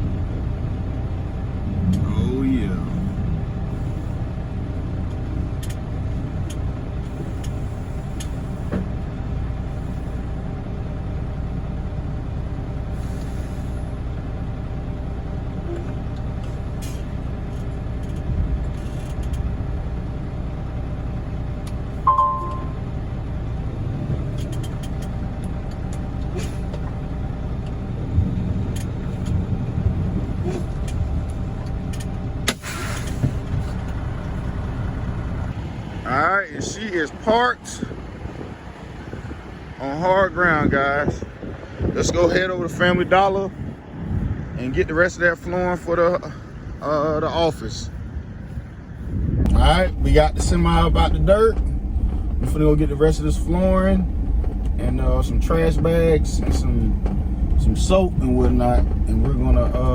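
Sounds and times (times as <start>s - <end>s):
diesel truck engine running: 0.0s - 59.9s
short high beep: 22.1s - 22.8s.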